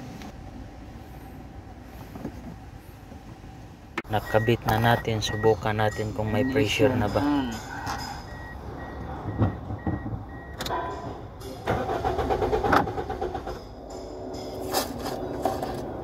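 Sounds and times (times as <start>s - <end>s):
starter motor cranking engine: 11.6s - 13.7s.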